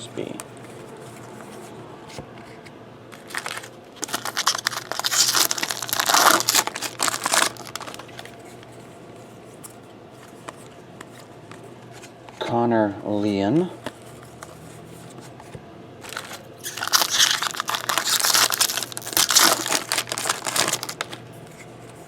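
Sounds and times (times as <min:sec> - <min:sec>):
foil wrapper crinkling: 0:03.2 - 0:08.7, 0:16.0 - 0:21.2.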